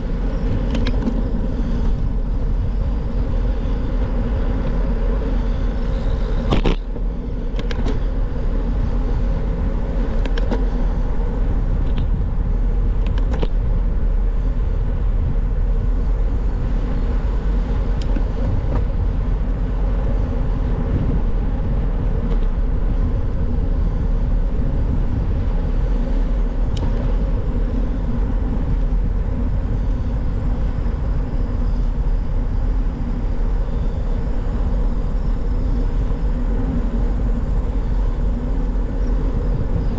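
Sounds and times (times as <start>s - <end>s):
bicycle tyre noise: 0.0s - 39.9s
wind rumble on microphone: 0.0s - 39.9s
light clicks and rattles: 13.0s - 13.6s.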